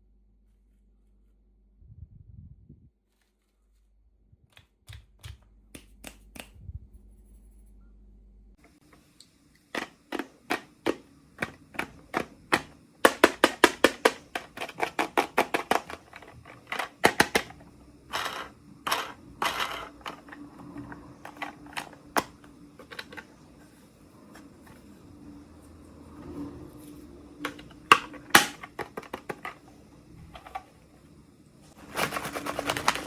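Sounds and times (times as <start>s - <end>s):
crinkly plastic rustling: 31.6s - 33.0s.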